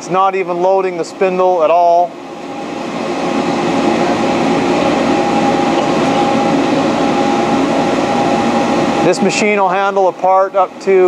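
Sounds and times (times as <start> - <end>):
lathe humming: 0.0 - 11.0.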